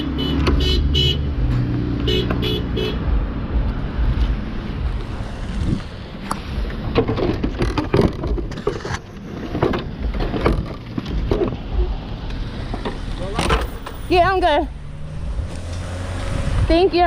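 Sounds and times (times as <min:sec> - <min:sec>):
road traffic noise: 0:00.0 - 0:17.0
wind on microphone: 0:04.0 - 0:06.0, 0:15.2 - 0:17.0
knocks and clatter: 0:06.6 - 0:12.0.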